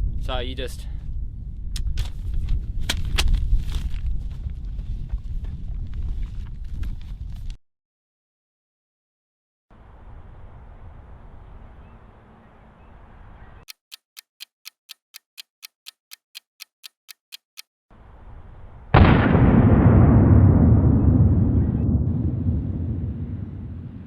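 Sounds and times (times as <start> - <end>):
bomb timer ticking: 13.7 - 17.7
loud rumbling explosion: 18.9 - 24.0.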